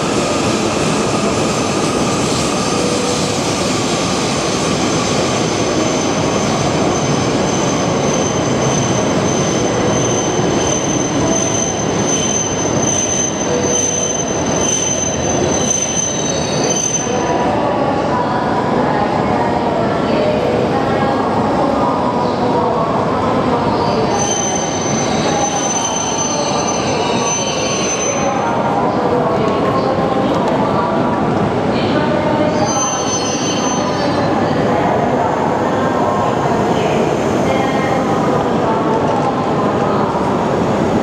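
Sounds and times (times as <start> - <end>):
high brake squeal: 6.9 - 17.3, 24.1 - 28.3, 32.5 - 34.2.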